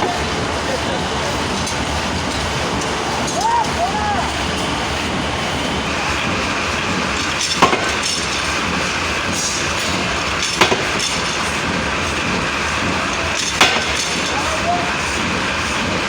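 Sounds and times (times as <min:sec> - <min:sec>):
workshop machinery running: 0:00.0 - 0:16.0.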